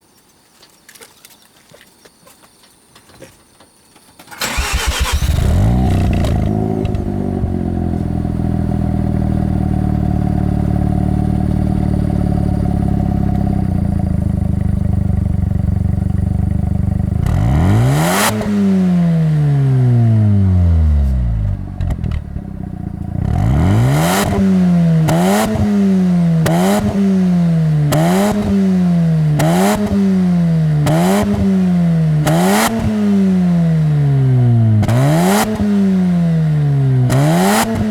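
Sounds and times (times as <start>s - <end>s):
engine starting up: 4.3s - 7.2s
quick throttle blips: 4.3s - 7.6s
rotary engine idling: 4.4s - 17.3s
engine revving: 4.4s - 37.9s.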